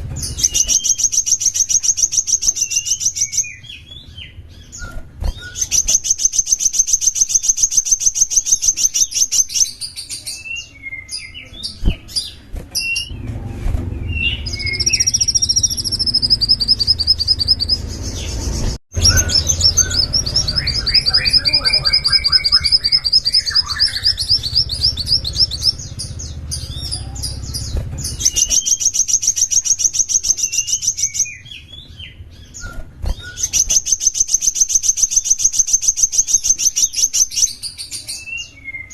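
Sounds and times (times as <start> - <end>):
songbird singing trills: 0.0 - 13.2, 14.0 - 38.9
low rumble: 11.6 - 28.5.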